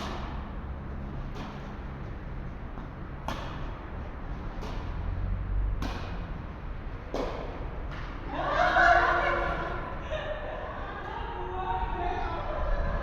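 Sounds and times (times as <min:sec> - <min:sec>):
tennis ball struck with rackets: 0:00.0 - 0:02.0, 0:03.2 - 0:05.1, 0:05.7 - 0:08.8.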